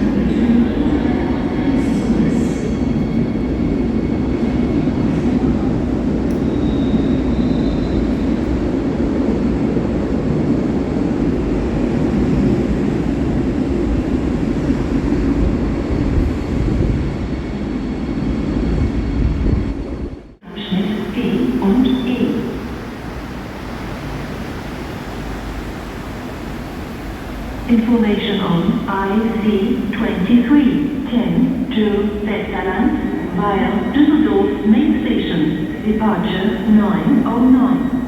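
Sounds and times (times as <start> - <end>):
faint high squeal: 6.4 - 8.2.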